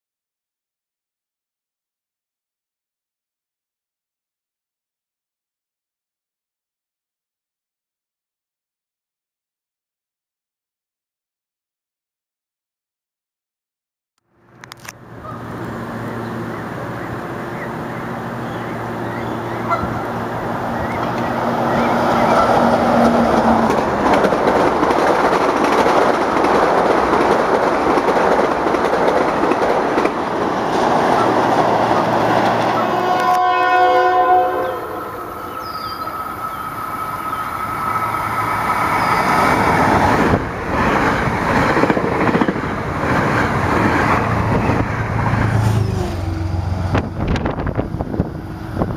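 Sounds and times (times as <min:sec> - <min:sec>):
train wheels rumbling on rail: 0:14.6 - 0:48.9
train horn blast: 0:32.7 - 0:36.6.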